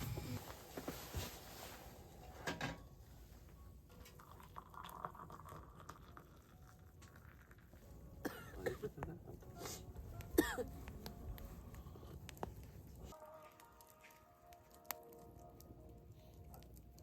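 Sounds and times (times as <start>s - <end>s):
cookware clinking and knocking: 2.4s - 2.9s.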